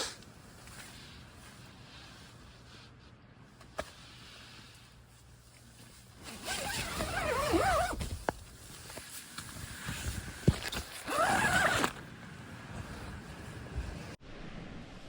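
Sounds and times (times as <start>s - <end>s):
zipper being pulled: 6.3s - 8.1s, 9.8s - 12.0s.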